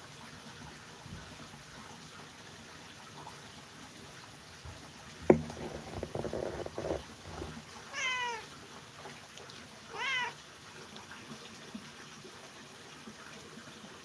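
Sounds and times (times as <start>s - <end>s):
clattering and rustling: 5.2s - 7.6s
sharp knock: 5.3s - 6.8s
cat meowing: 7.9s - 8.5s, 9.9s - 10.4s.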